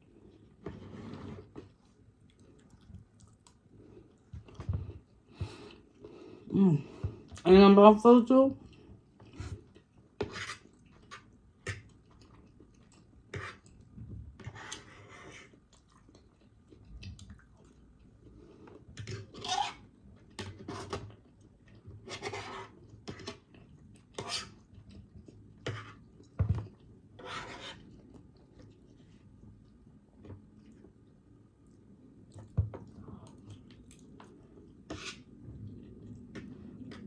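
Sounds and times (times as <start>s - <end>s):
chewing: 1.8s - 4.7s, 15.7s - 18.8s.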